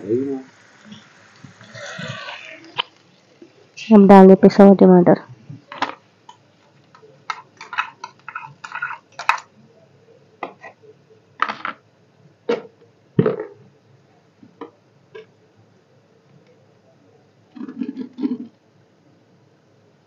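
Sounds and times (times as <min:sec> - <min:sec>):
puree frying with pops: 0:00.0 - 0:15.5, 0:16.2 - 0:18.7
metal spoon scraping steel bowl: 0:07.6 - 0:09.1.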